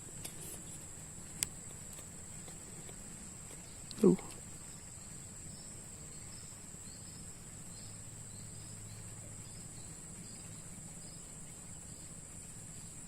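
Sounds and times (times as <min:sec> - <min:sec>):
high-pitched insect trill: 0:03.2 - 0:13.0.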